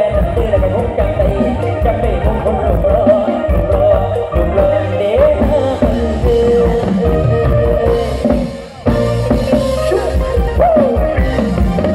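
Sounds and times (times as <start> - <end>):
bending melody line: 0.0 - 11.9
drum kit beat: 0.0 - 11.9.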